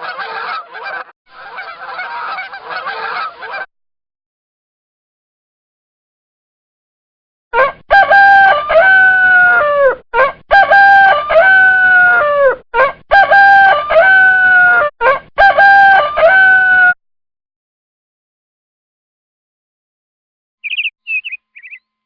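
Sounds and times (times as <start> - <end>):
rooster crowing: 7.6 - 17.0.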